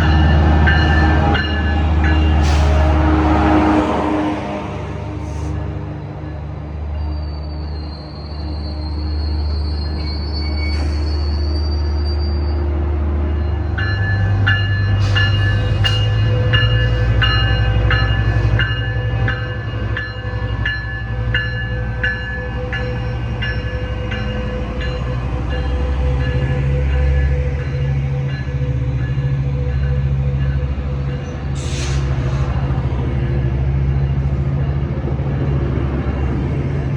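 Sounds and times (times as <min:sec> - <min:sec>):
train rumbling: 0:00.0 - 0:36.9
high wheel squeal: 0:07.0 - 0:12.6.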